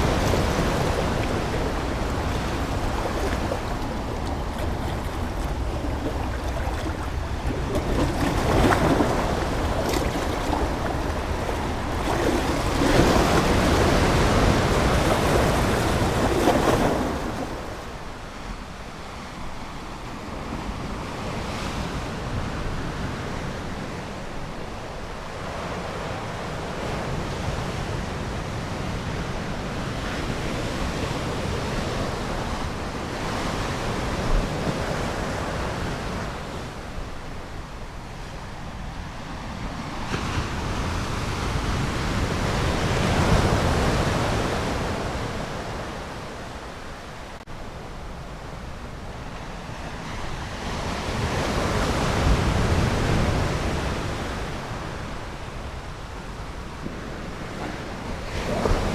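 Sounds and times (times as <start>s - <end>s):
ocean waves washing on shore: 0.0s - 58.9s.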